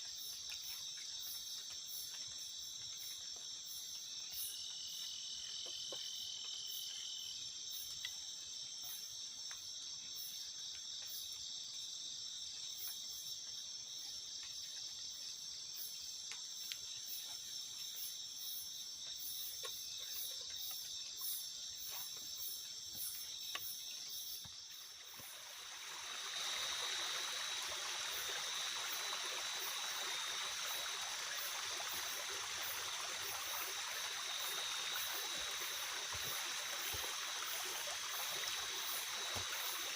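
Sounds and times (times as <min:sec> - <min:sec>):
night insects trilling: 0:00.0 - 0:39.9
fast pulsing insect chirp: 0:16.9 - 0:39.9
rushing water: 0:22.9 - 0:39.9.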